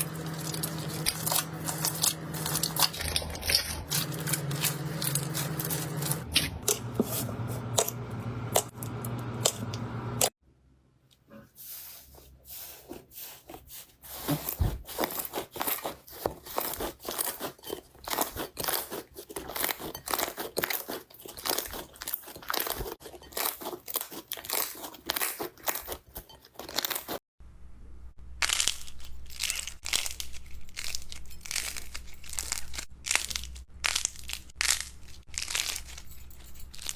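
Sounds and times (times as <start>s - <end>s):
slime crackling and crunching: 0.0s - 6.8s, 13.3s - 27.2s, 28.4s - 36.9s
low hum: 0.0s - 10.3s.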